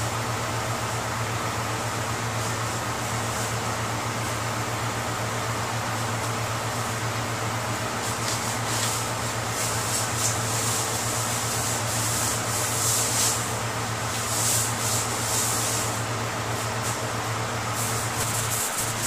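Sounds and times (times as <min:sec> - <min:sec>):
steady low hum: 0:00.0 - 0:19.0
cloth rubbing on car panels: 0:17.8 - 0:19.0.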